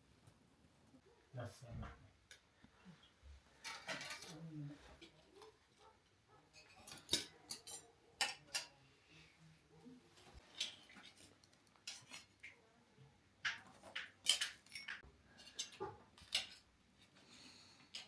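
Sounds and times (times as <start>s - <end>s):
cutlery clinking on dishes: 3.6s - 4.4s, 6.5s - 8.8s, 10.4s - 12.6s, 13.5s - 16.7s.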